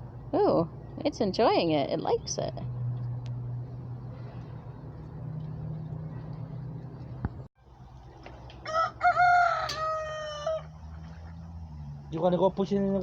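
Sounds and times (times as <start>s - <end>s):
low steady hum: 0.0s - 12.2s
rooster crowing: 8.6s - 11.0s.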